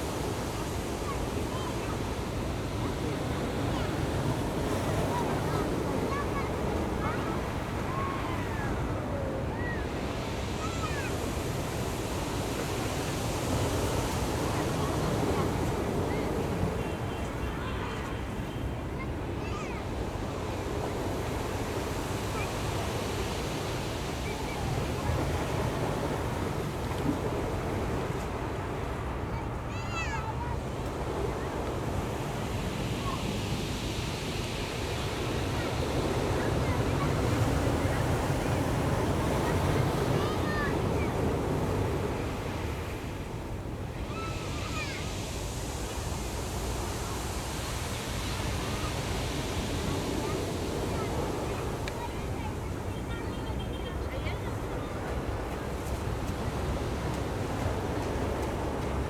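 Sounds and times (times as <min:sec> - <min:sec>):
faint distant voices: 0:00.0 - 0:59.0
ocean waves on shore: 0:00.0 - 0:59.0.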